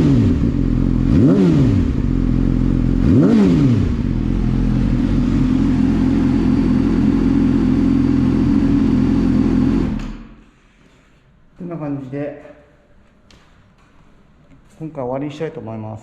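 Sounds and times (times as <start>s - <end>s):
motorcycle engine revving and idling: 0.0s - 10.3s.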